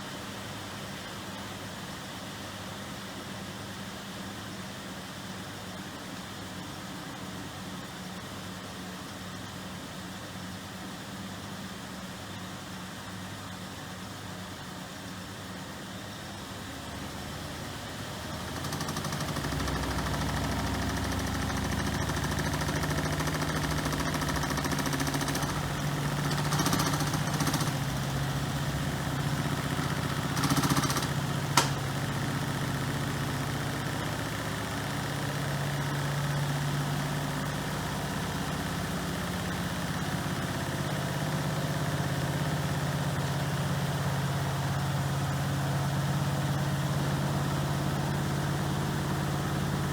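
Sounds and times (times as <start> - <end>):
washing machine motor humming: 17.2 - 32.7
sharp click: 30.4 - 31.9.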